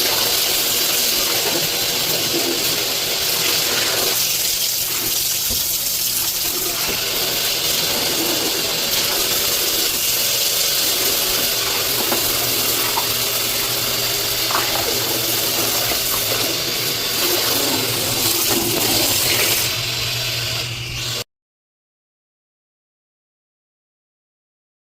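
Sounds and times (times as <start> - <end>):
water rushing and splashing: 0.0 - 19.7.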